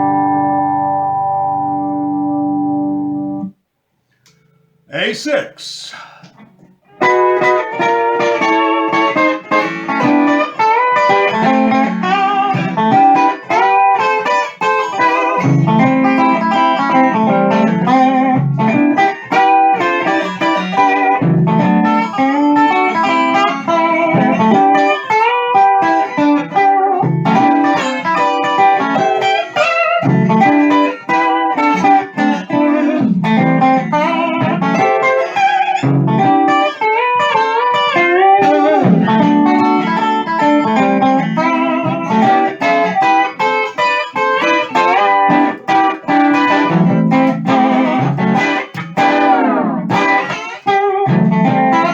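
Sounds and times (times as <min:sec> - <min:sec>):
steel guitar playing: 0:00.0 - 0:03.6, 0:06.9 - 0:51.9.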